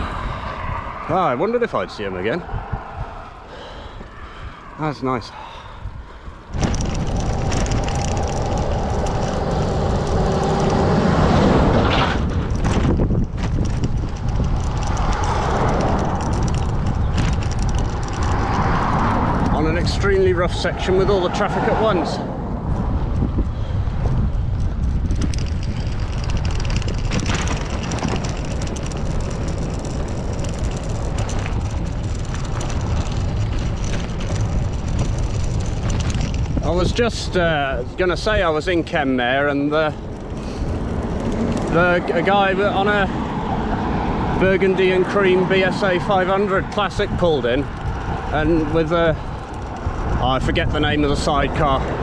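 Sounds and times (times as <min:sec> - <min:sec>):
traffic passing close: 0:00.0 - 0:52.0
wind rushing over microphone: 0:00.0 - 0:52.0
knocks from rough road: 0:06.5 - 0:19.6, 0:24.0 - 0:36.8
motorcycle running: 0:06.5 - 0:38.3, 0:39.0 - 0:52.0.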